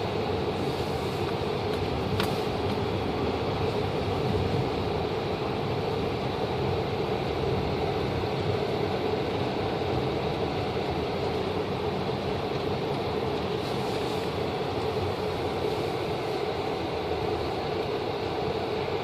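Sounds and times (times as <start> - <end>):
vehicle road noise rumble: 0.0 - 19.0.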